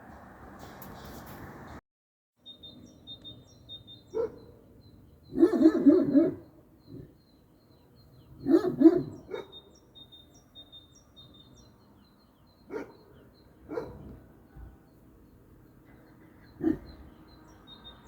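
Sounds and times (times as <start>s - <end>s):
bird chirping: 2.4s - 18.0s
dog barking: 4.1s - 4.5s, 5.3s - 6.5s, 8.4s - 9.6s, 12.7s - 14.2s, 16.6s - 17.0s.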